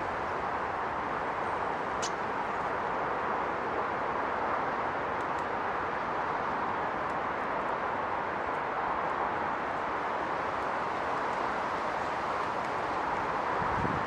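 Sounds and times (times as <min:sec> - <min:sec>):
rushing background noise: 0:00.0 - 0:14.0
small bird call: 0:01.9 - 0:02.3.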